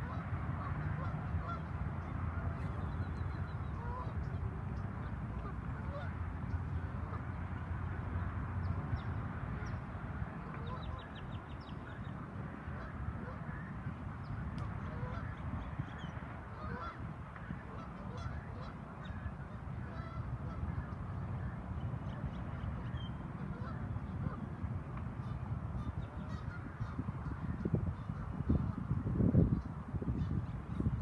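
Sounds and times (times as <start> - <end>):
geese honking: 0.0 - 4.2, 5.0 - 6.2, 14.8 - 15.4, 16.5 - 21.5, 22.8 - 24.4, 25.2 - 28.8.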